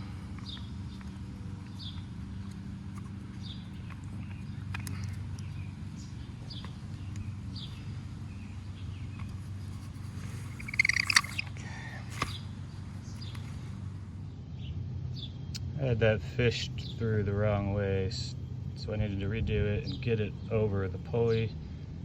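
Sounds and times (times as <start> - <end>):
light clicks: 0.3 - 5.6
bird chirps: 3.2 - 13.8.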